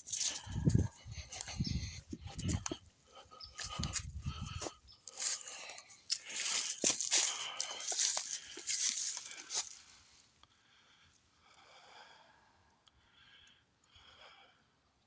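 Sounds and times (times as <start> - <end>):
footsteps crunching dry leaves: 0.0 - 1.5, 3.6 - 10.1.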